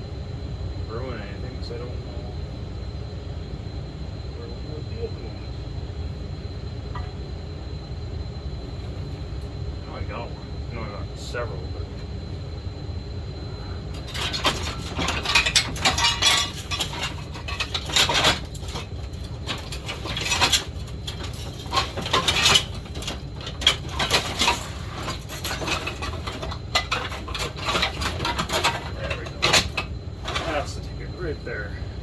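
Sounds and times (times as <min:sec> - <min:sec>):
steady low hum: 0:00.0 - 0:32.0
metal parts clattering: 0:13.9 - 0:30.7.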